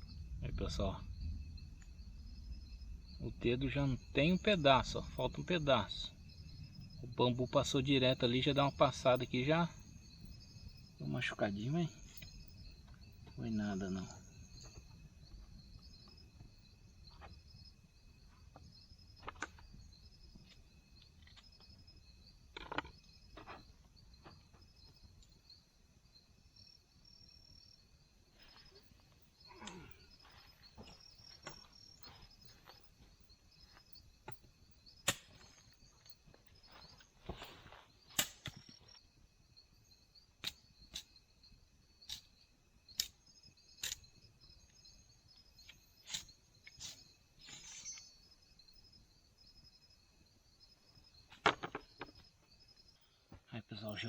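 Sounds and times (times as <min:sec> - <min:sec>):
insects chirping: 0:00.0 - 0:54.0
sharp knocks and clicks: 0:51.3 - 0:52.2.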